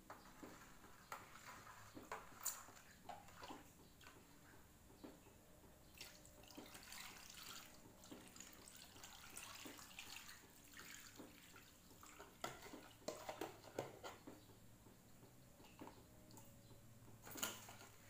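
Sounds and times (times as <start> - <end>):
faint water trickling: 0.2 - 13.8.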